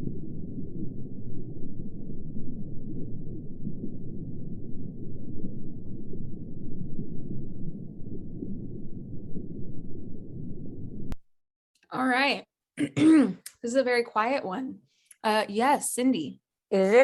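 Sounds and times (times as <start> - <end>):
muffled underwater rumble: 0.0 - 11.2.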